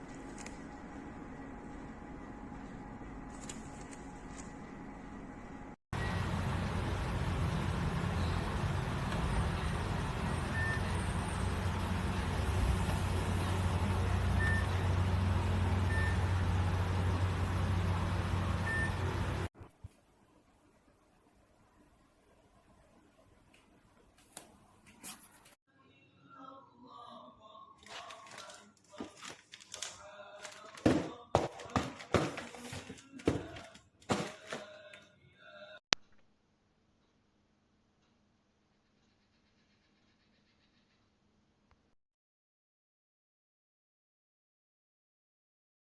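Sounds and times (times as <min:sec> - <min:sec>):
microwave oven hum with hiss: 0:04.6 - 0:19.5
crinkling: 0:27.8 - 0:35.0.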